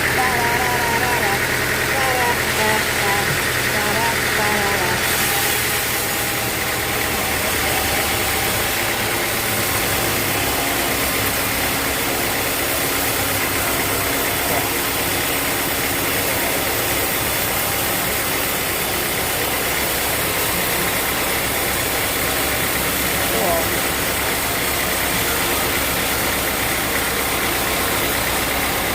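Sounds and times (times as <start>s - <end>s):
sawmill machinery droning: 0.0s - 28.9s.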